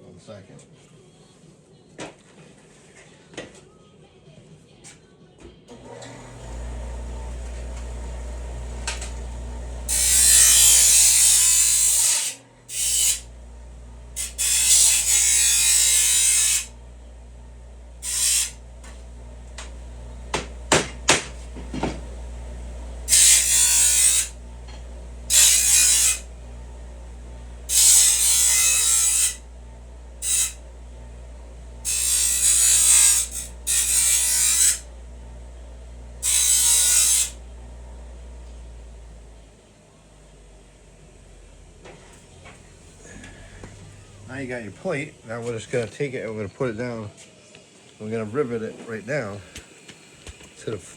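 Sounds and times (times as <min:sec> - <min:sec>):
bench grinder motor running: 0:05.7 - 0:39.6, 0:42.7 - 0:46.0
steel grinding on wheel: 0:09.8 - 0:13.4, 0:14.1 - 0:16.8, 0:18.0 - 0:19.7, 0:23.0 - 0:26.5, 0:27.6 - 0:29.4, 0:30.2 - 0:30.6, 0:31.8 - 0:34.9, 0:36.2 - 0:37.4.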